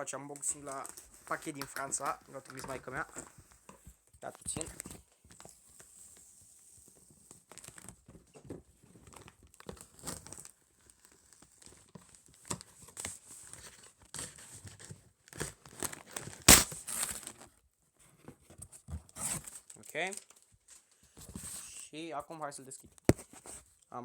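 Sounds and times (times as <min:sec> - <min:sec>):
packaging crinkling and rustling: 0:00.0 - 0:17.6, 0:18.8 - 0:21.6
sharp loud snap: 0:16.5 - 0:16.8.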